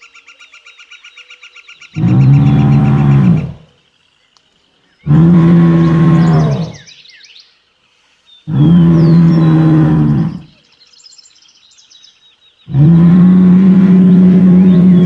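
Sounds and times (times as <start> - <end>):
faint bird chirps: 0.0 - 3.5, 5.8 - 12.8.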